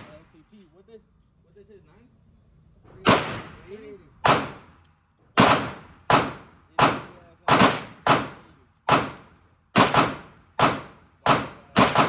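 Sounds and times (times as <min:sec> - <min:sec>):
gunshots echoing indoors: 0:05.4 - 0:09.2, 0:09.8 - 0:12.0.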